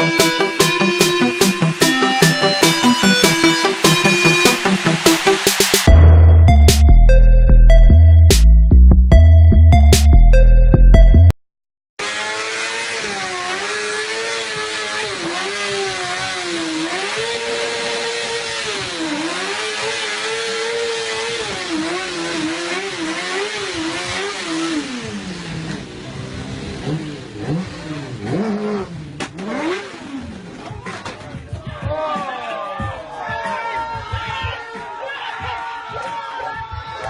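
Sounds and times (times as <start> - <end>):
motorcycle engine revving: 12.0 - 31.5.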